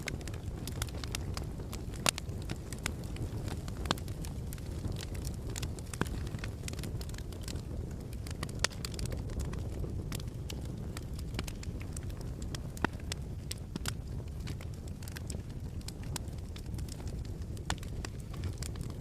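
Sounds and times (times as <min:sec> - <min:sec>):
flames rumbling: 0:00.0 - 0:19.0
wood fire snapping and popping: 0:00.0 - 0:19.0.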